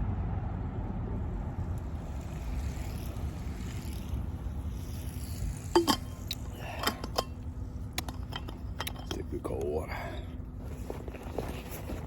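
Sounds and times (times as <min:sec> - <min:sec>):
low outdoor rumble: 0:00.0 - 0:12.0
sharp clicks and knocks: 0:05.8 - 0:09.3.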